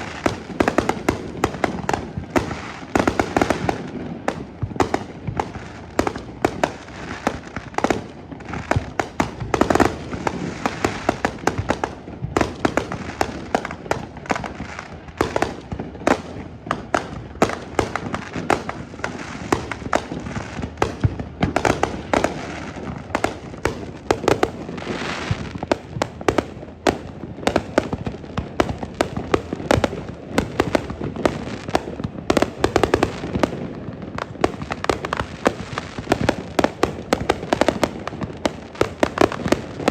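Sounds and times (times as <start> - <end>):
fireworks hissing: 0.0 - 4.0, 18.0 - 25.7
fireworks bangs and crackling: 0.0 - 39.9.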